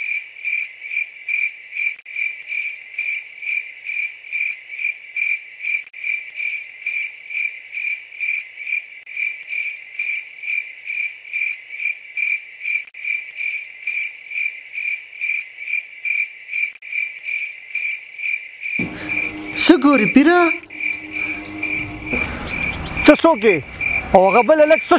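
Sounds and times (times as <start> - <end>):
cricket chirping: 18.6 - 24.9.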